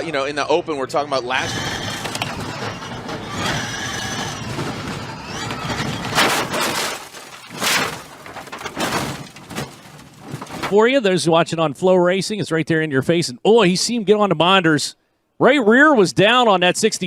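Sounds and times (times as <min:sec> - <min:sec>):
race car engine: 0:01.3 - 0:10.7
loud crunching impacts: 0:01.5 - 0:10.8.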